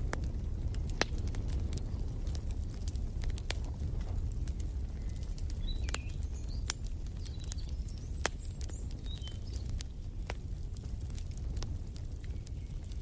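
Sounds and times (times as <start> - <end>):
wood fire crackling and popping: 0.0 - 13.0
small birds chirping: 4.6 - 10.0, 12.2 - 13.0.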